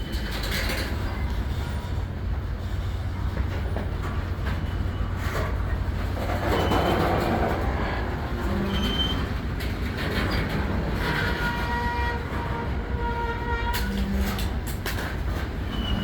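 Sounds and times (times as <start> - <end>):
freight train rumbling: 0.0 - 16.0
wheel squeals: 4.4 - 5.6, 6.2 - 7.5, 8.4 - 9.4, 15.6 - 16.0.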